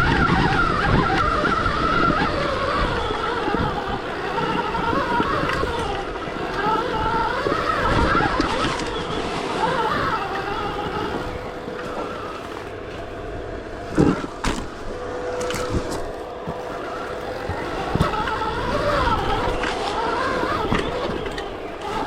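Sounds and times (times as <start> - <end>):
electric motor whining: 0.0 - 22.0
off-road riding rumble: 0.0 - 22.0
bike knocking on bumps: 6.6 - 22.0.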